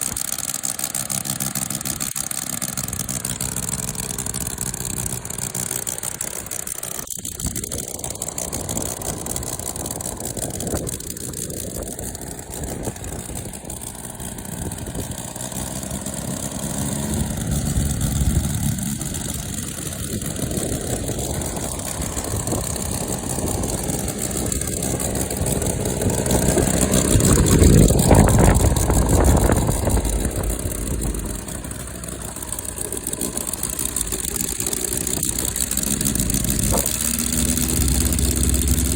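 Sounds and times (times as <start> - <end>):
model engine revving: 0.0 - 38.9.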